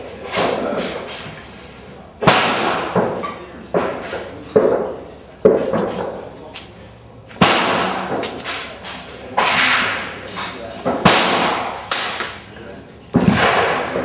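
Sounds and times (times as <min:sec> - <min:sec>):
pistol shots echoing: 0:02.2 - 0:03.0, 0:07.4 - 0:08.2, 0:11.0 - 0:12.4, 0:13.2 - 0:14.0.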